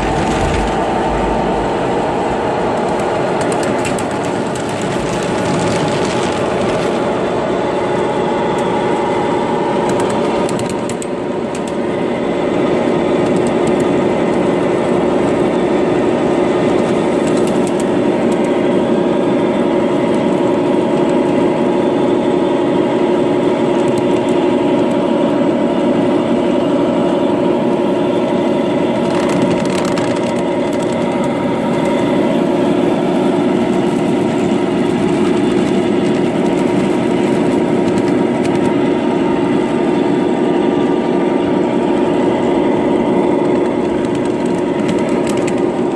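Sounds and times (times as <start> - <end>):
small diesel engine humming: 0.0 - 45.9.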